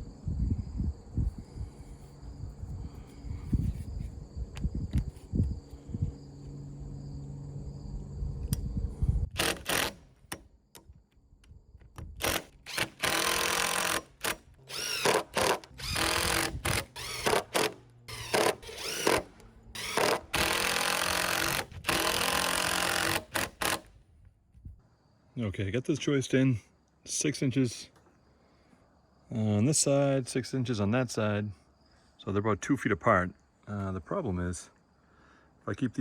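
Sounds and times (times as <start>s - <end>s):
cordless drill driving screws: 9.3s - 10.4s, 12.2s - 23.9s.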